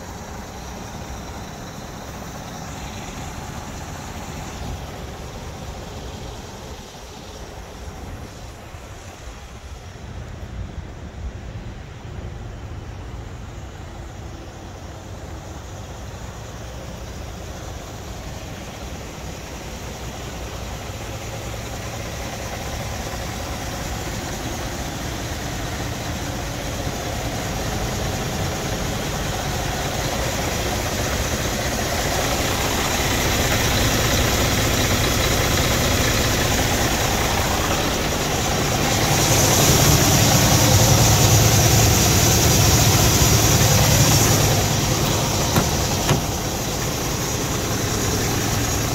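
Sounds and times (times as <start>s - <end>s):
diesel truck engine idling: 0.0s - 48.9s
strong hiss: 0.0s - 48.9s.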